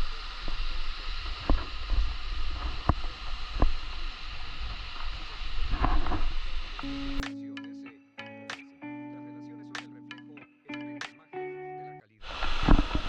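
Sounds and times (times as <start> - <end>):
plucked guitar tune: 6.8 - 12.0.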